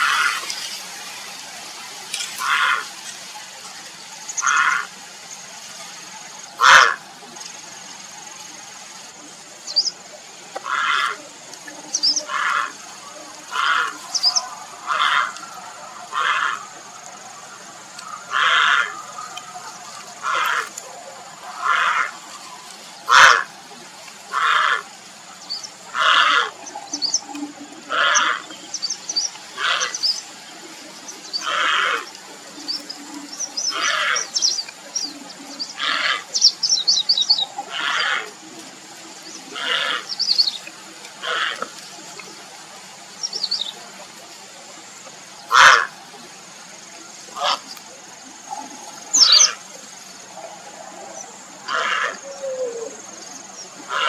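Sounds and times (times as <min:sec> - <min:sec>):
small birds chirping: 0:02.2 - 0:50.4
heron harsh calls: 0:04.4 - 0:04.9, 0:06.6 - 0:07.0, 0:10.6 - 0:11.2, 0:23.1 - 0:23.5, 0:25.9 - 0:26.6, 0:45.5 - 0:45.9, 0:51.6 - 0:52.8.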